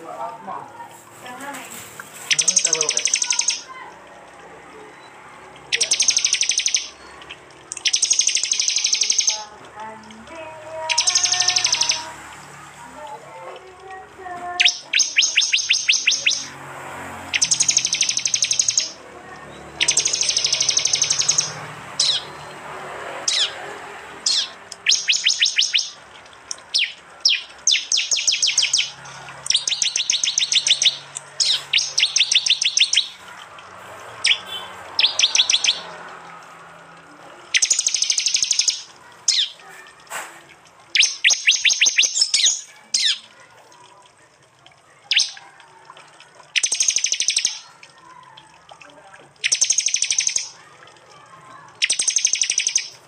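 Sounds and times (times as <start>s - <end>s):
bird sharp ticking calls: 2.2s - 4.0s, 4.8s - 9.5s, 10.8s - 12.4s, 14.5s - 22.5s, 23.2s - 36.2s, 37.5s - 40.0s, 40.9s - 43.4s, 45.0s - 45.5s, 46.5s - 48.3s, 49.4s - 50.8s, 51.6s - 53.0s.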